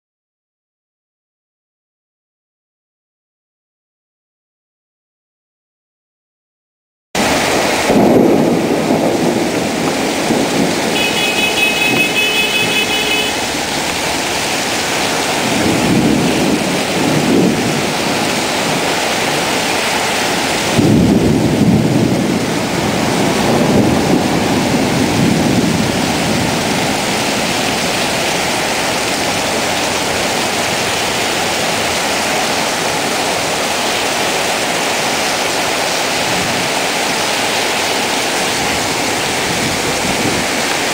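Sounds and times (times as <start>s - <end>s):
thunder rumbling: 7.2s - 34.8s
heavy rain pouring: 7.2s - 40.9s.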